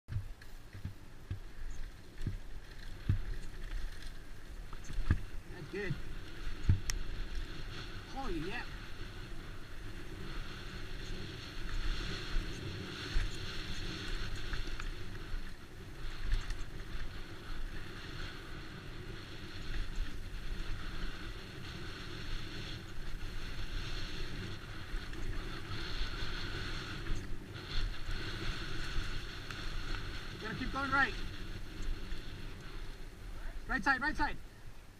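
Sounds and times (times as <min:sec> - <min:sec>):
bike knocking on bumps: 0:00.1 - 0:05.4, 0:06.1 - 0:07.6
tyres rolling on dirt trail: 0:00.1 - 0:34.9
wind rushing over microphone: 0:00.1 - 0:34.9.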